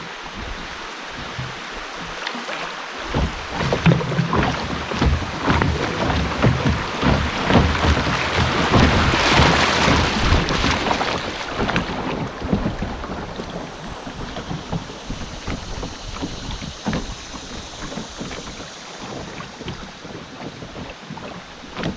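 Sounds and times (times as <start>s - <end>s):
water rushing and splashing: 0.0s - 21.9s
low thumps: 0.2s - 2.2s, 3.0s - 18.6s
wind buffeting microphone: 3.0s - 21.9s.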